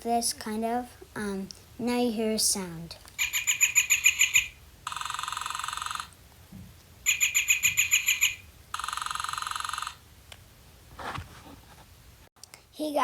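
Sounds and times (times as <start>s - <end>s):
recorded bird calls from toy speaker: 3.2s - 6.2s, 7.0s - 10.0s.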